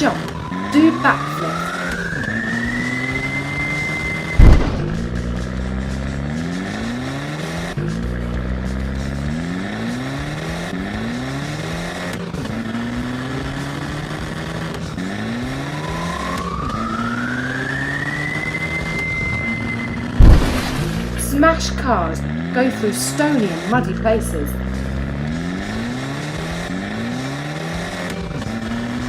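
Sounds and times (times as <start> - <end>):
high rising tone: 0.0 - 7.8, 15.3 - 26.8
monster truck engine revving: 0.0 - 29.0.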